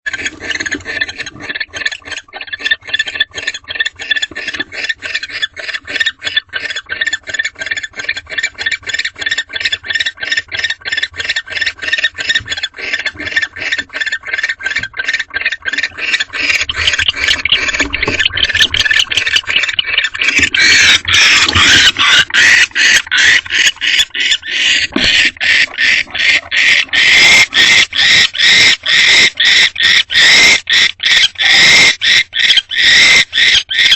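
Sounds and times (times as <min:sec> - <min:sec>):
barn owls rasping calls: 0:00.1 - 0:33.9
owl screech: 0:00.1 - 0:33.9.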